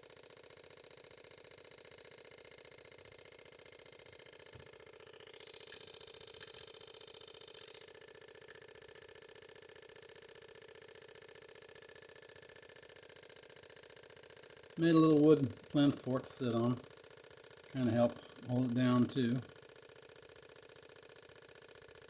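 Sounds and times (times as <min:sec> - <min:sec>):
steam engine exhaust beat: 0:14.8 - 0:16.8.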